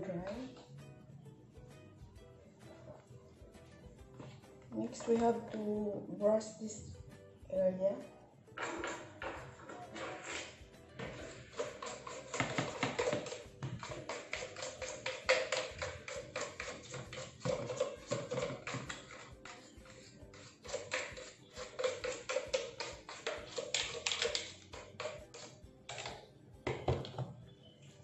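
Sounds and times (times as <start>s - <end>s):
background music: 0.0s - 28.0s
brush scrubbing plastic: 9.9s - 25.6s.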